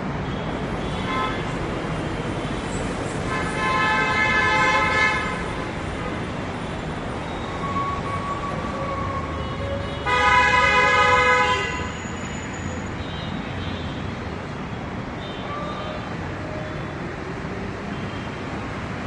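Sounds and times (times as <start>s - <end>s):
road traffic: 0.0s - 19.0s
vehicle horns honking: 0.8s - 1.6s, 3.3s - 6.2s, 7.6s - 12.6s.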